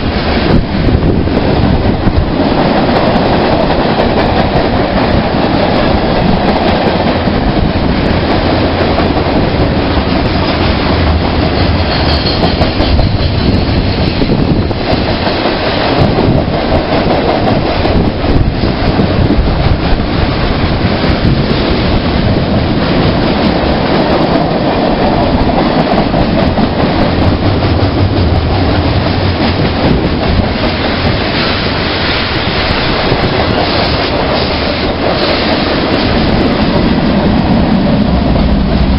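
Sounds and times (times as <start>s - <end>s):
train rumble: 0.0s - 38.9s
train wheels clicking on rails: 0.0s - 38.9s.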